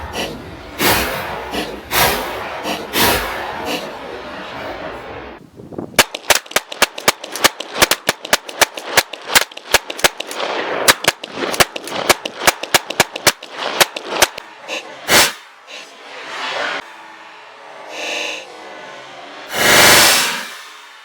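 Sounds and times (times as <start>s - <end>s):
rapid semi-automatic gunfire: 6.0s - 14.4s.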